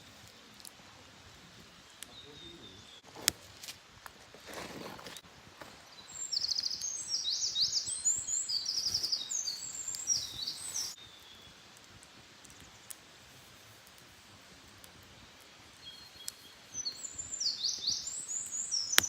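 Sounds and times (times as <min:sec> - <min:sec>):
faint outdoor background: 0:00.0 - 0:19.0
songbird twittering: 0:02.0 - 0:03.0, 0:05.9 - 0:11.6, 0:15.8 - 0:19.0.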